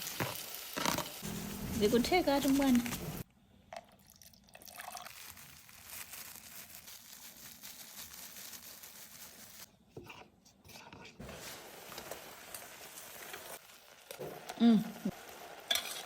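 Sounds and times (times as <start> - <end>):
chicken sizzling in a pan: 0.0 - 3.2, 11.2 - 16.0.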